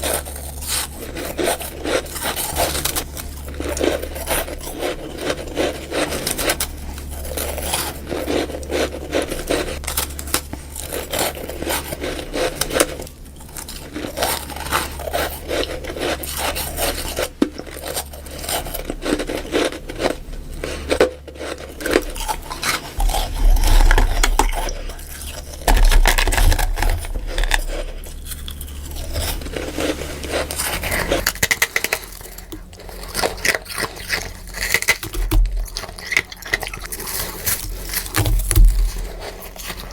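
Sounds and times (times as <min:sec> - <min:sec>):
chewing crunchy frost: 0:00.0 - 0:39.9
deep low thumps: 0:23.0 - 0:29.6.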